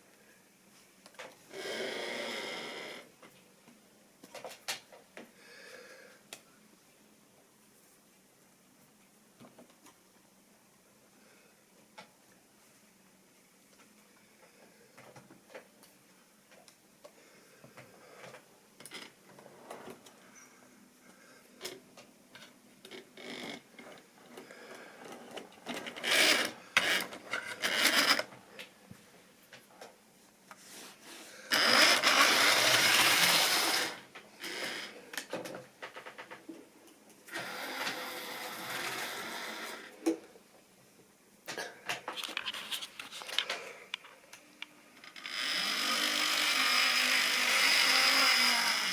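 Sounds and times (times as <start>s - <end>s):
model train wheels clicking: 25.8s - 28.3s, 31.5s - 34.9s, 45.0s - 48.9s
model train whirring rattle: 26.0s - 28.2s, 31.5s - 34.9s, 45.1s - 48.9s.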